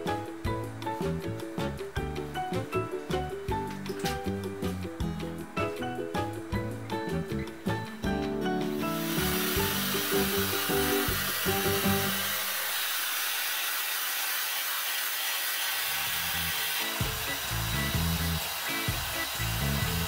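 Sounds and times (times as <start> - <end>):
background music: 0.0 - 12.5, 16.8 - 20.0
hair dryer blowing: 8.7 - 20.0.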